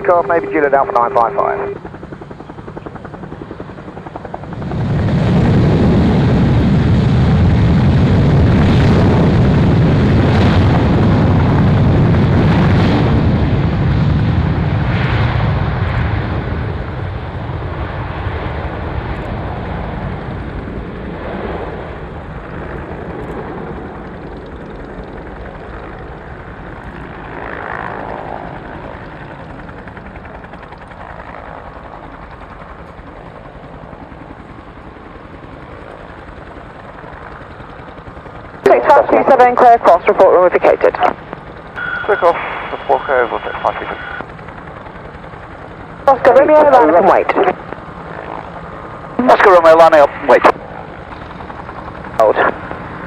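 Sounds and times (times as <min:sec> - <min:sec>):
military jet taking off: 0:00.0 - 0:01.9, 0:04.4 - 0:19.1, 0:38.6 - 0:41.2, 0:41.8 - 0:44.3, 0:49.2 - 0:50.6, 0:52.1 - 0:53.0.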